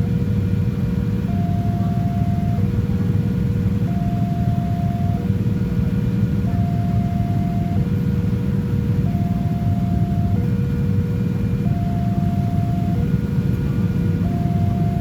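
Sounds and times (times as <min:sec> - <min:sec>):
two-tone warning alarm: 0:01.2 - 0:02.7, 0:03.8 - 0:05.4, 0:06.4 - 0:08.0, 0:09.0 - 0:10.5, 0:11.5 - 0:13.1, 0:14.1 - 0:15.0.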